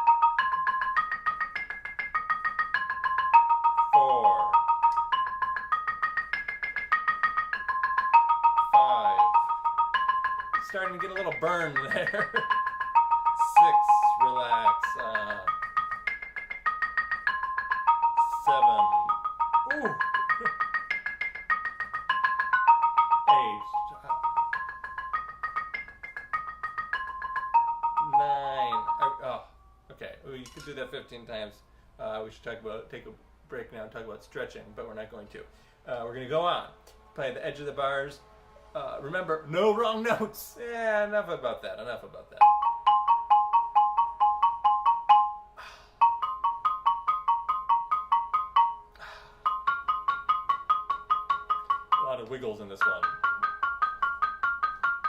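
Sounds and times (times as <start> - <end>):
xylophone mallet strokes: 0.0 - 31.2, 41.7 - 55.0
xylophone double stops: 27.6 - 29.3.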